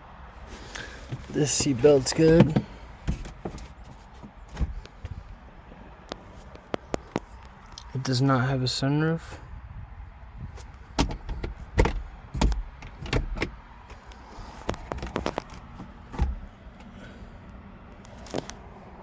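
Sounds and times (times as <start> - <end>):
car interior fittings clicking: 0.7 - 5.3, 11.0 - 17.0.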